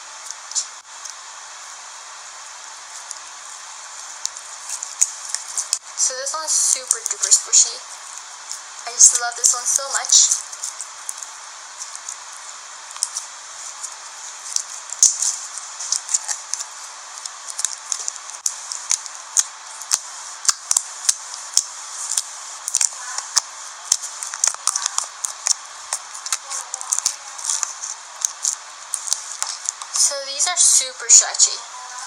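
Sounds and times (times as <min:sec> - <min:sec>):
steady hiss: 0:00.0 - 0:32.0
slime squishing with clicks and pops: 0:14.4 - 0:30.0.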